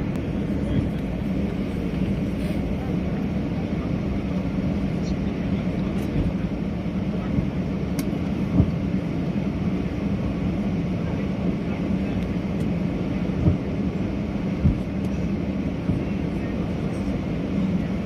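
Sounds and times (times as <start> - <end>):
jet engine cabin rumble: 0.0 - 18.0.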